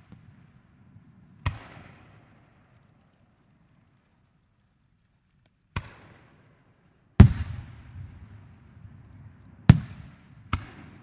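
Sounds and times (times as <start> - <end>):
fireworks booming with echo: 7.2 - 11.0.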